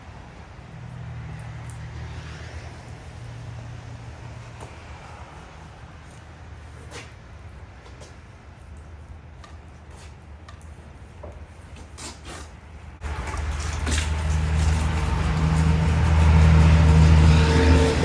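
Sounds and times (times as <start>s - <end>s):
high-pressure pump hum: 13.0s - 18.0s.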